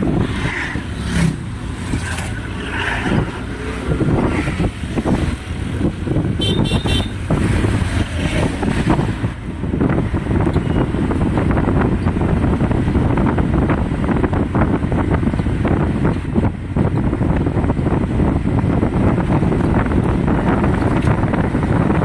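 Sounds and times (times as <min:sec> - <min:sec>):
road traffic rumble: 0:00.0 - 0:22.0
wind buffeting microphone: 0:00.0 - 0:22.0
vehicle horn beeps: 0:06.4 - 0:07.2.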